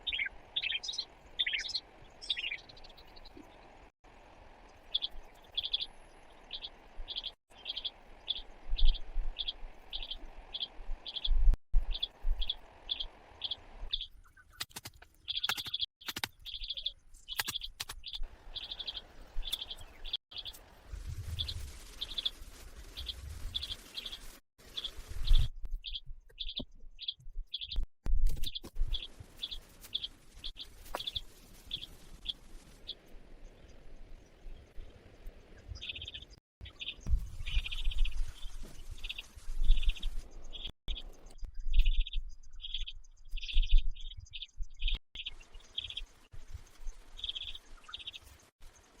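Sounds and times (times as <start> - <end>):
bird chirping: 0.0 - 3.7, 4.7 - 20.6, 21.3 - 49.0
rustling: 20.3 - 25.5.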